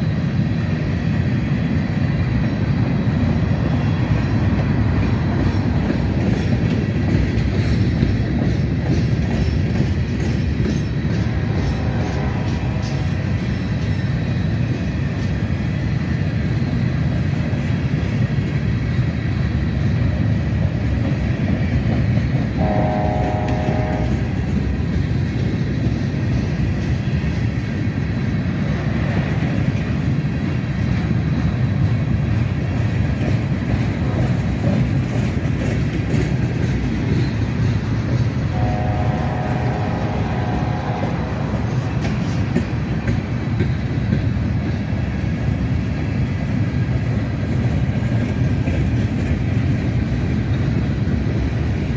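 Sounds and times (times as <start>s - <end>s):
freight train rumbling on rails: 0.0s - 51.9s
locomotive horn blasts: 11.4s - 13.2s, 22.6s - 24.4s, 38.5s - 41.9s.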